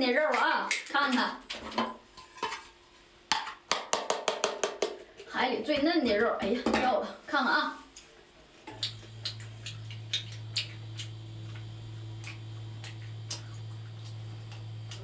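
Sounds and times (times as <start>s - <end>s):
steady low hum: 5.0s - 15.0s
wet mouth clicks chewing: 8.8s - 15.0s.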